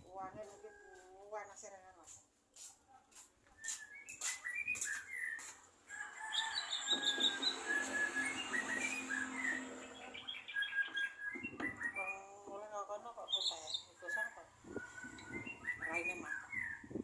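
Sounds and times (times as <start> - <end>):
songbird singing: 3.5 - 17.0.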